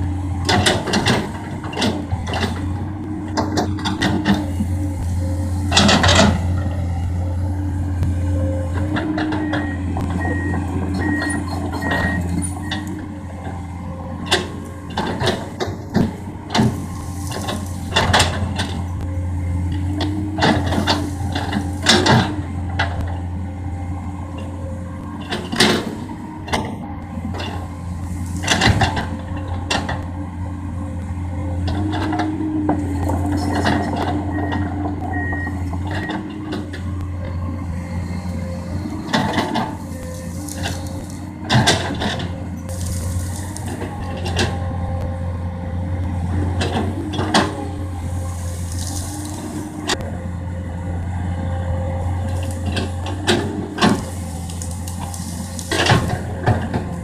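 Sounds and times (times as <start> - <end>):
excavator diesel engine: 0.0 - 57.0
brush cracking and knocking: 38.8 - 44.6, 46.6 - 49.8, 52.2 - 57.0.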